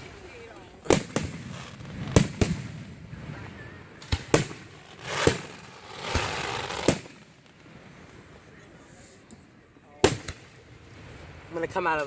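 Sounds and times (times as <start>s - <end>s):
fireworks booming: 0.0s - 7.8s
fireworks hissing: 4.0s - 7.8s.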